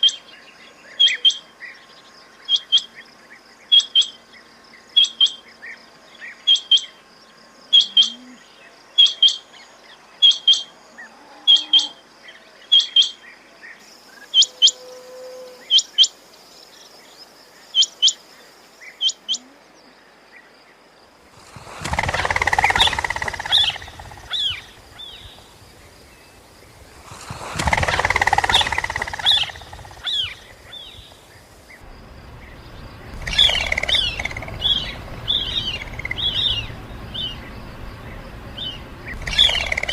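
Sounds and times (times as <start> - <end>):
rushing noise: 21.3 - 39.9
quick chirps: 21.4 - 31.8, 32.5 - 39.9
quail calling: 21.5 - 26.3, 27.0 - 31.5, 33.1 - 37.4, 38.6 - 39.9.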